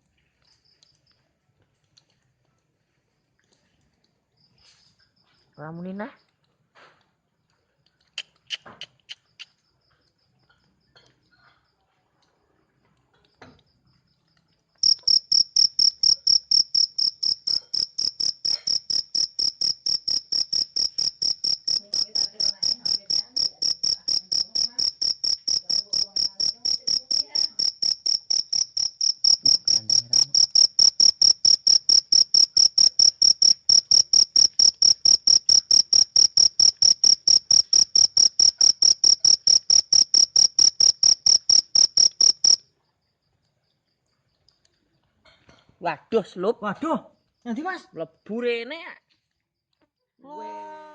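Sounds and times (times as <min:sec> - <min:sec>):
cricket chirping: 0:08.2 - 0:11.8, 0:13.1 - 0:45.4.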